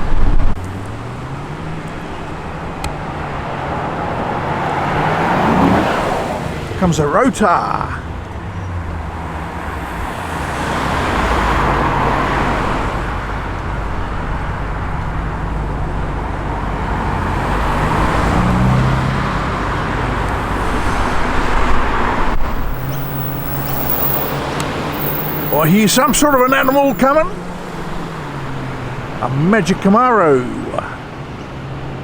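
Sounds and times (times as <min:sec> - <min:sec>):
car traffic: 0:00.0 - 0:32.0
car engine at low revs: 0:08.2 - 0:29.2.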